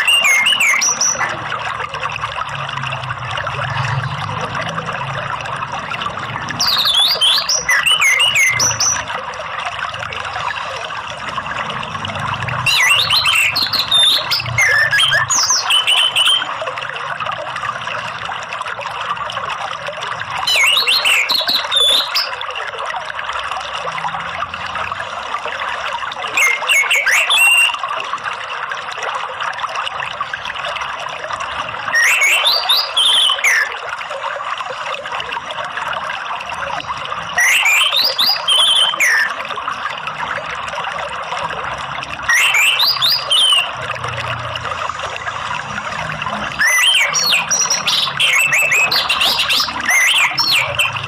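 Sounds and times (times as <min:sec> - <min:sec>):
bird whistling song: 0:00.0 - 0:01.3, 0:06.6 - 0:09.1, 0:12.6 - 0:16.5, 0:20.4 - 0:22.4, 0:26.3 - 0:27.8, 0:31.9 - 0:33.7, 0:37.4 - 0:39.4, 0:42.3 - 0:43.8, 0:46.6 - 0:51.0
water trickling: 0:00.0 - 0:51.0.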